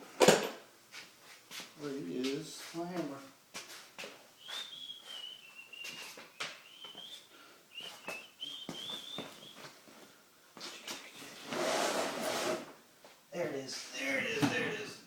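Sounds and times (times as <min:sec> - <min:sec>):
person whistling a tune: 0:04.4 - 0:09.7.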